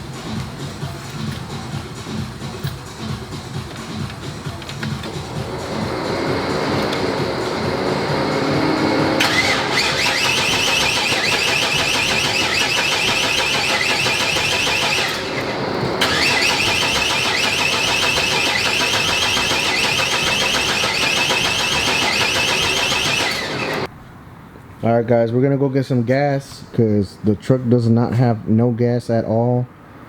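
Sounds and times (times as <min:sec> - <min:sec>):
truck starter cranking engine: 0:00.0 - 0:23.9.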